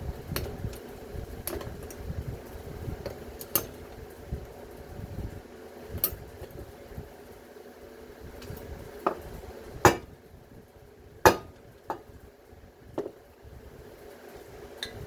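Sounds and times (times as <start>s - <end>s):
hammer striking metal: 9.9s - 10.1s, 11.3s - 11.6s.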